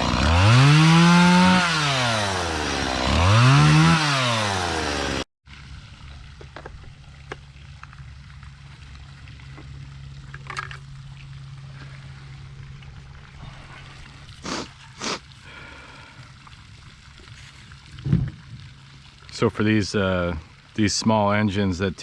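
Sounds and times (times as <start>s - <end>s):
chainsaw revving: 0.0s - 5.3s
low steady hum: 5.5s - 22.0s.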